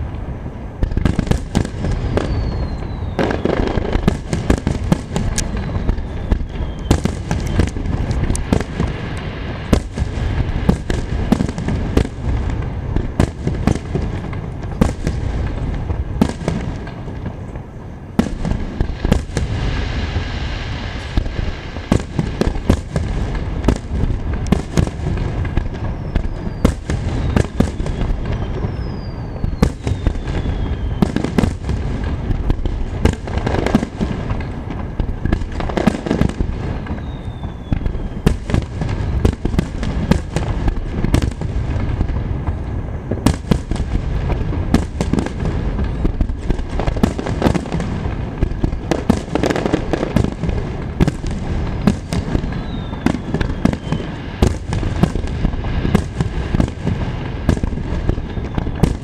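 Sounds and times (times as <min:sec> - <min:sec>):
continuous rumble: 0:00.0 - 0:59.0
falling whistles: 0:02.1 - 0:03.7, 0:05.5 - 0:07.8, 0:25.8 - 0:31.3, 0:36.8 - 0:38.4, 0:52.0 - 0:54.3, 0:58.1 - 0:59.0.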